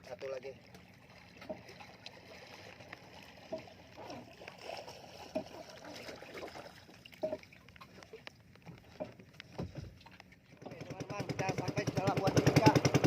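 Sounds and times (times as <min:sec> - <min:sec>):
water sloshing and splashing: 0:00.0 - 0:13.0
light knocks on boat hull: 0:09.5 - 0:10.0.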